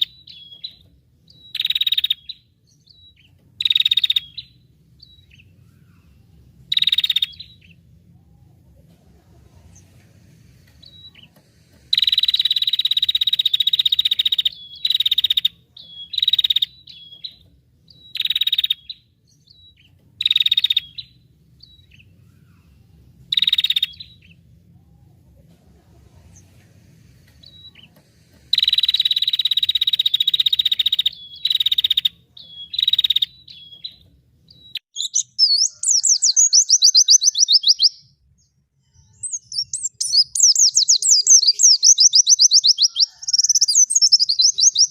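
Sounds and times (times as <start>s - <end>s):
bird rapid sweeping chirps: 11.9s - 17.3s, 28.5s - 33.9s, 34.5s - 38.0s, 38.9s - 44.9s
songbird harsh buzzing calls: 39.3s - 44.9s.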